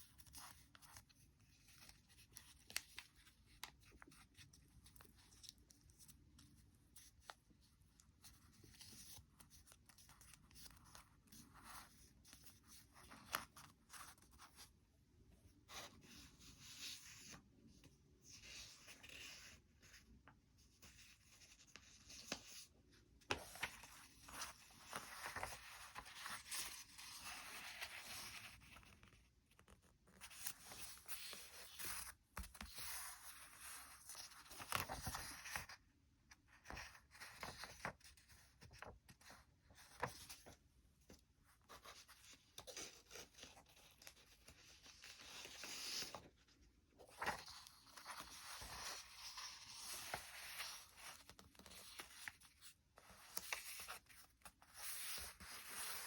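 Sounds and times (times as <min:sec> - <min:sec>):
paper rustling and crinkling: 0:20.9 - 0:35.8, 0:36.5 - 0:56.0.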